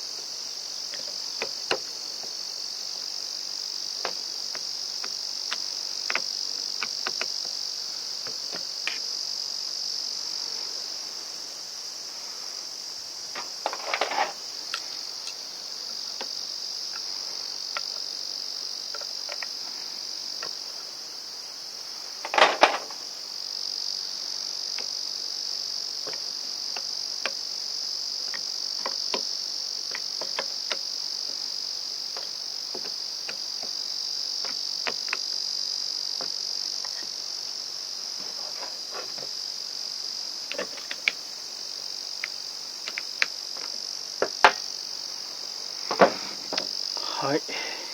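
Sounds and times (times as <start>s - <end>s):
insect chorus: 0.0s - 47.9s
parts clattering: 13.4s - 15.4s, 22.2s - 23.0s, 40.5s - 41.2s, 45.9s - 46.8s
light clicks and knocks of parts: 13.4s - 17.1s, 18.9s - 19.6s, 29.9s - 31.4s, 40.5s - 41.2s.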